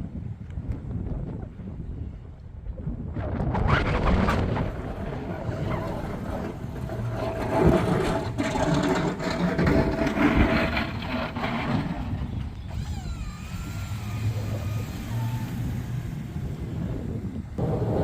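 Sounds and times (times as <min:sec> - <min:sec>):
rough engine running: 0:04.7 - 0:18.0
thin steady whine: 0:12.3 - 0:18.0.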